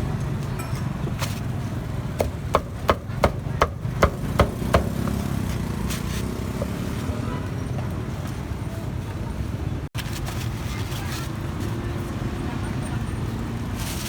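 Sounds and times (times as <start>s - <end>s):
cleaver chopping on block: 2.2s - 5.3s.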